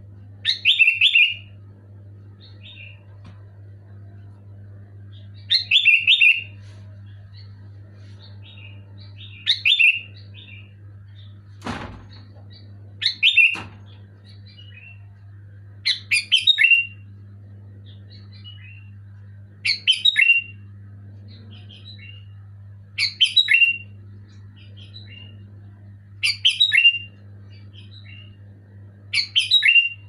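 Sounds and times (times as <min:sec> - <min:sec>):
steady low hum: 0:00.0 - 0:30.0
bulbul singing: 0:00.4 - 0:01.6, 0:04.9 - 0:11.4, 0:12.1 - 0:15.1, 0:15.8 - 0:22.4, 0:23.0 - 0:28.5, 0:29.1 - 0:30.0.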